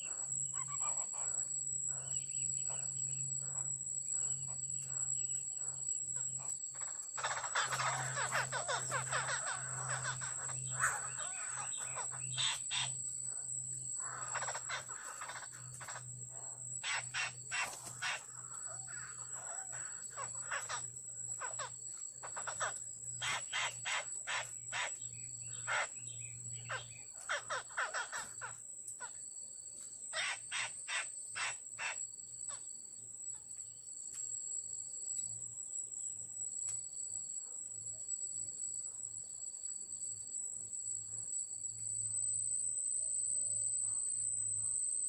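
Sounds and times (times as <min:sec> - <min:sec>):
bird raspy chattering calls: 0:00.0 - 0:02.1, 0:06.2 - 0:13.0, 0:14.0 - 0:16.0, 0:16.8 - 0:29.1, 0:30.1 - 0:32.6
high insect whine: 0:00.0 - 0:45.0.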